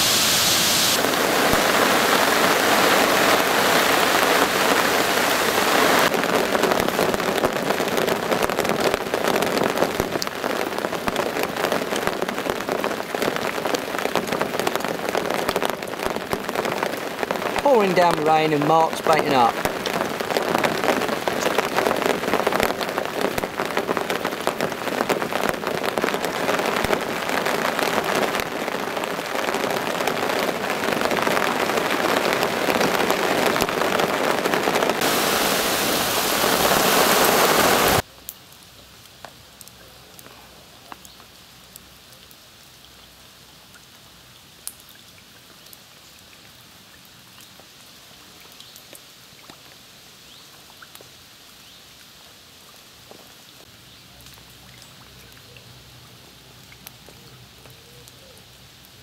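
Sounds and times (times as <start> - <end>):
heavy rain pouring: 0.0 - 38.1
faint outdoor background: 17.1 - 27.3, 34.9 - 59.0.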